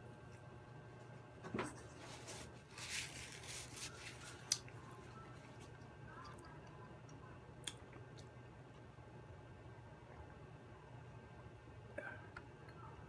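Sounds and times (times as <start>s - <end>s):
person chewing food: 3.2s - 4.8s.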